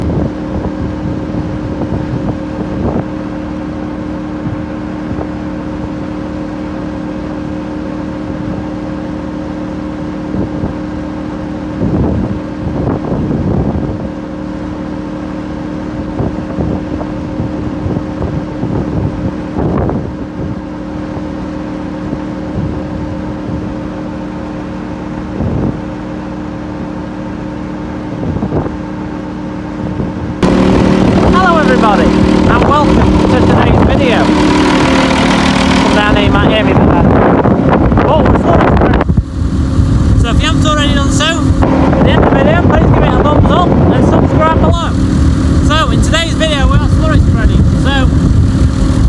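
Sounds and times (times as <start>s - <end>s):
wind buffeting microphone: 0.0s - 5.9s, 11.7s - 14.2s, 15.8s - 21.4s, 28.1s - 28.9s, 29.8s - 49.0s
tractor diesel engine running: 30.4s - 37.9s, 39.0s - 49.0s.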